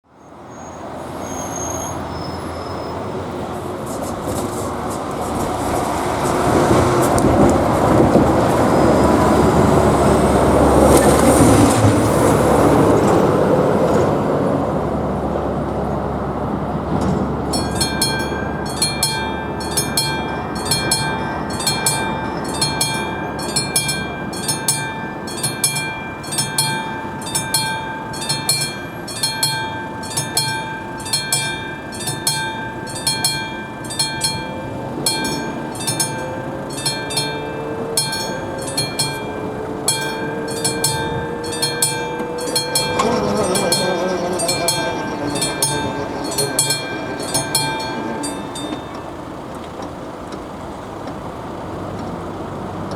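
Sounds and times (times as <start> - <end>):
level crossing warning bell: 5.4 - 52.9
low rising whine: 17.5 - 49.7.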